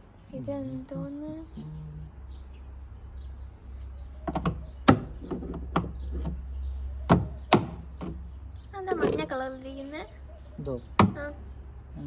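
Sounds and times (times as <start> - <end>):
plastic parts clicking and knocking: 4.2 - 6.4, 7.1 - 8.2.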